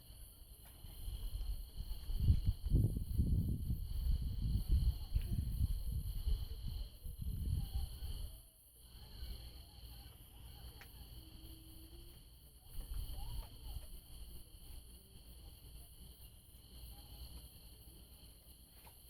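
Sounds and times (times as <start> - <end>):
low rumble on microphone: 0.0 - 9.6
crickets trilling: 0.0 - 19.0.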